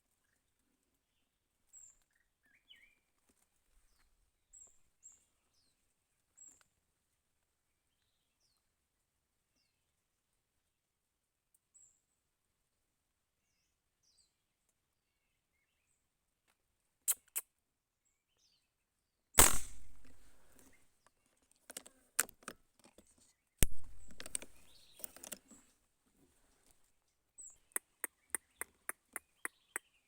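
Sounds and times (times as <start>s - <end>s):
echoing gunshots: 19.4s - 20.4s
small clicks: 23.6s - 25.6s.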